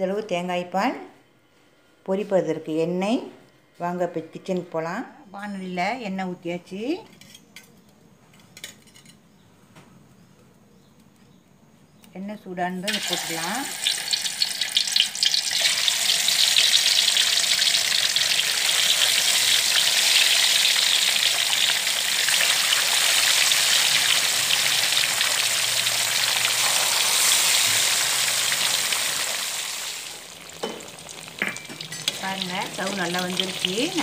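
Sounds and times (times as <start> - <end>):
tofu sizzling in hot oil: 12.9 - 34.0.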